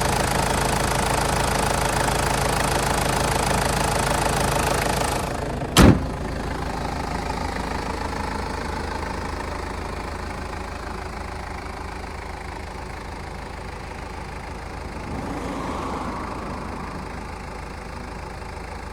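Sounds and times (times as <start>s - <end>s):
diesel engine idling: 0.0s - 18.9s.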